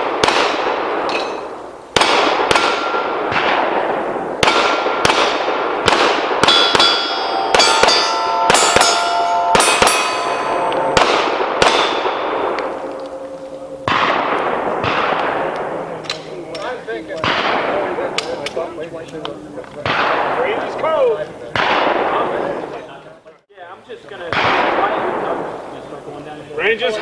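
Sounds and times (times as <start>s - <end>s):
pistol shots: 0.0s - 10.3s, 11.0s - 18.6s
steel plates ringing: 6.4s - 16.7s.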